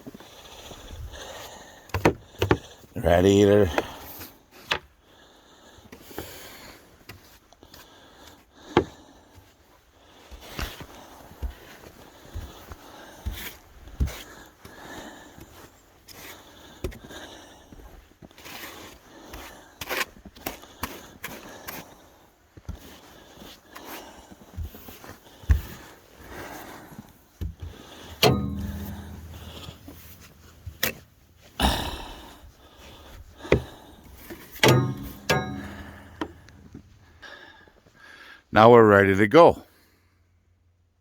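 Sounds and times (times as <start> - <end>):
sharp knocks: 28.2 - 31.2, 34.6 - 36.9.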